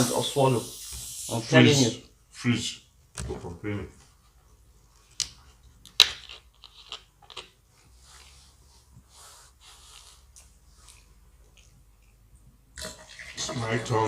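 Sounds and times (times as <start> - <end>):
soft breathy noises: 7.9 - 11.2
wet mouth clicks and smacks: 10.3 - 12.3.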